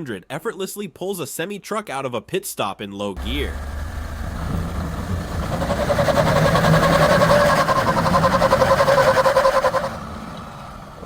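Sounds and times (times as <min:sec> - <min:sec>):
engine droning at high revs: 0:03.2 - 0:11.0.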